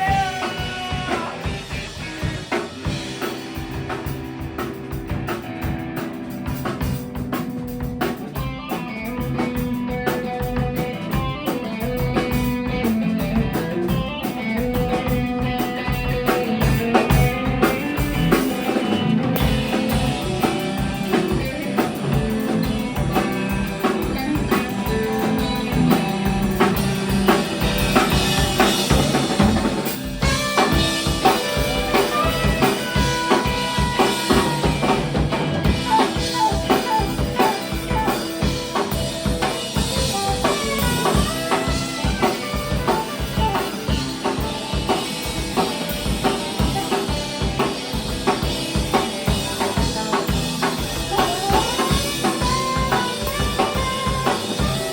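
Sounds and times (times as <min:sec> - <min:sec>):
drum kit beat: 0:00.0 - 0:54.9
electric guitar: 0:00.0 - 0:54.9.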